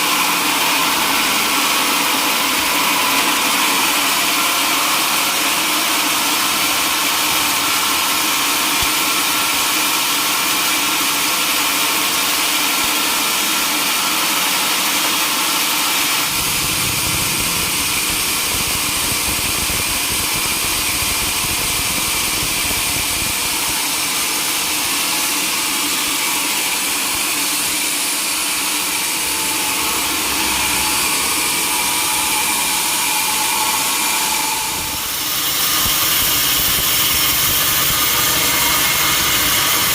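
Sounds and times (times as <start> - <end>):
sawmill sawing wood: 0.0 - 39.9
deep rumble: 16.2 - 23.6.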